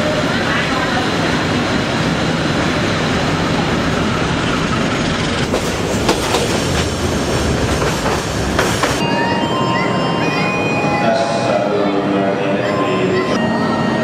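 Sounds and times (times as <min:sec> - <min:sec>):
train rumble inside carriage: 0:00.0 - 0:14.0
train wheels clacking: 0:05.2 - 0:09.0.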